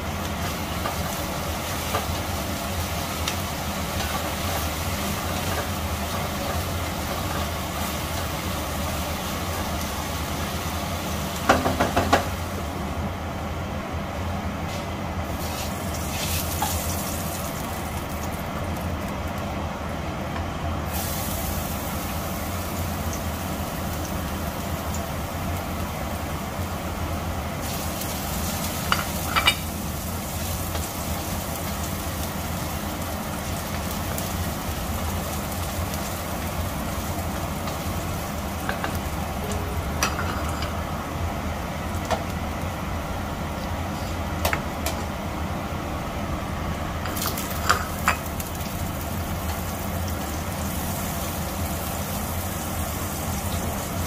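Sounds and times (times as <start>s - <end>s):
garlic sizzling in oil: 0.0s - 13.0s, 14.7s - 54.0s
steady low hum: 0.0s - 54.0s
wooden spatula knocking on wok: 11.5s - 12.3s.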